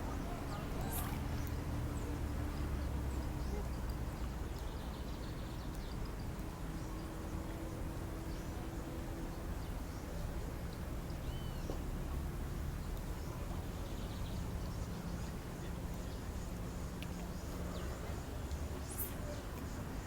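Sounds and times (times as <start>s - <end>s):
faint bird chirps: 11.2s - 11.7s.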